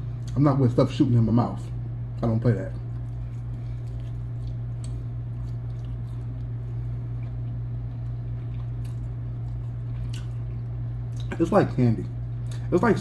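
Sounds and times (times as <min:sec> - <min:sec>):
low hum: 0:00.0 - 0:13.0
person chewing: 0:02.7 - 0:11.5.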